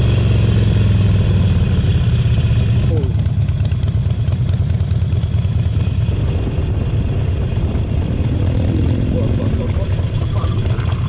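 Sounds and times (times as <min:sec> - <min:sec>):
motorcycle engine throbbing: 0:00.0 - 0:11.0.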